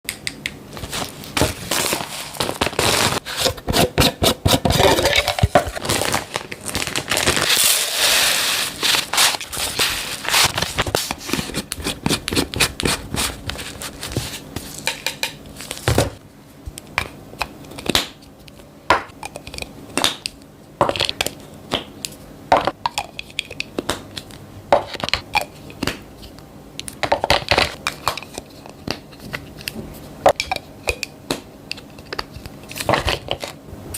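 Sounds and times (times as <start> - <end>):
plastic packaging crinkling: 0.8 - 3.6, 4.6 - 14.9
containers clicking and clattering: 3.4 - 6.2.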